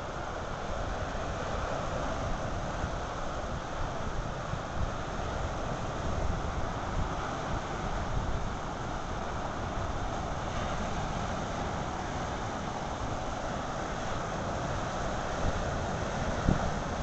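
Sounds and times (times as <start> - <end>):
waves washing on shore: 0.0 - 17.0
wind buffeting microphone: 14.4 - 17.0.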